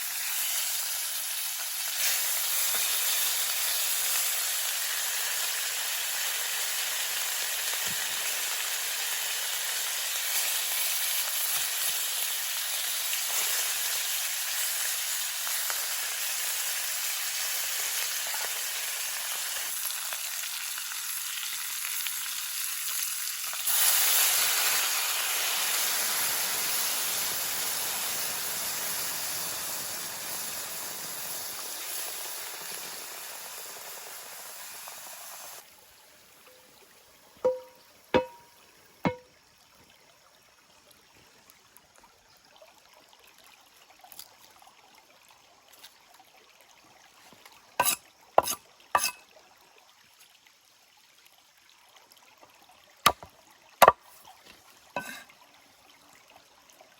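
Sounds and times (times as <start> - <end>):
ribs sizzling in a hot pan: 0.0 - 35.6, 47.8 - 49.2.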